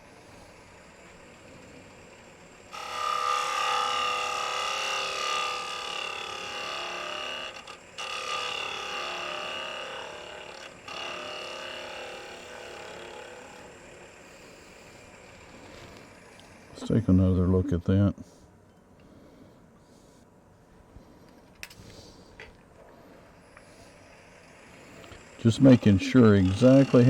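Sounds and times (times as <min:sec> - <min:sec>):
lathe tool scraping wood: 0:00.0 - 0:16.7, 0:24.0 - 0:27.0.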